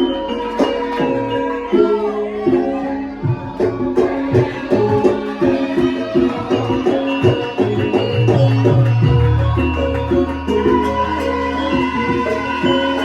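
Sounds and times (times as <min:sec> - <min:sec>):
drum strokes: 0:03.3 - 0:13.0.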